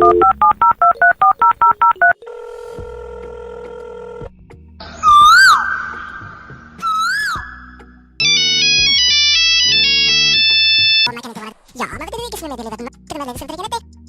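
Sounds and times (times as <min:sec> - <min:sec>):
telephone keypad beeps: 0:00.0 - 0:02.2
telephone ringing tone: 0:00.0 - 0:02.5, 0:08.2 - 0:11.1.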